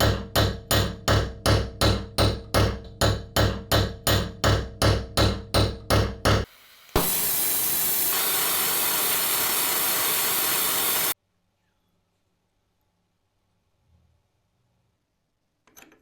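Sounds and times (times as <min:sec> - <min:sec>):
compressed air hissing: 0:06.5 - 0:11.2.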